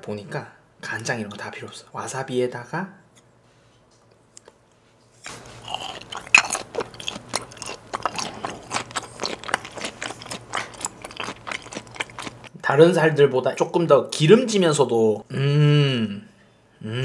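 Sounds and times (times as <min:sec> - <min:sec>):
close chewing clicks and crackles: 0:05.3 - 0:12.6.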